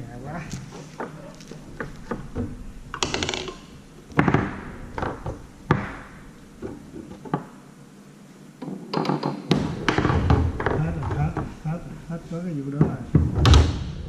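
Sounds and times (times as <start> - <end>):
foosball rattle: 0.6 - 7.7, 8.6 - 11.7
foosball knocks: 1.8 - 7.5, 8.6 - 11.5.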